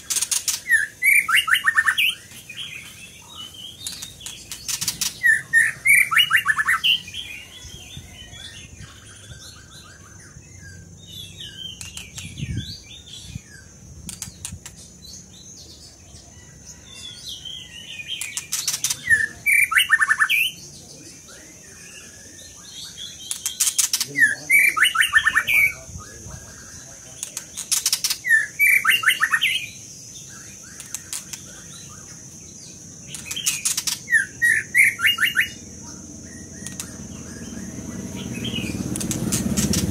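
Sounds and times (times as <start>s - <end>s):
songbird singing trilled phrases: 0.0s - 39.9s
sharp clicks: 3.8s - 5.2s, 11.7s - 12.3s, 14.0s - 14.8s, 18.2s - 19.1s, 23.2s - 24.1s, 27.2s - 28.2s, 30.8s - 31.5s, 33.1s - 34.1s, 36.6s - 37.0s, 38.8s - 39.9s.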